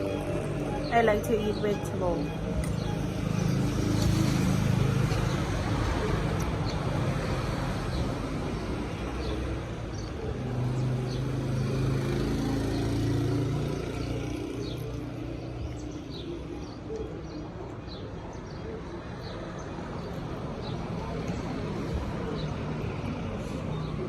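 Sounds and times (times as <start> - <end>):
vehicle engine hum: 0.0 - 17.7
road traffic: 0.0 - 24.0.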